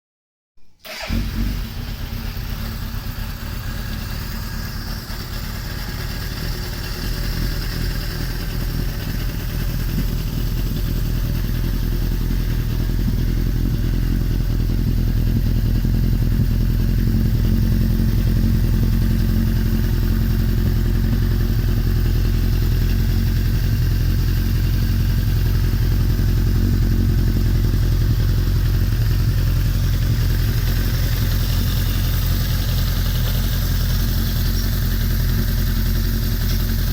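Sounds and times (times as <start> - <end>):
motorcycle engine idling: 0.9 - 36.9.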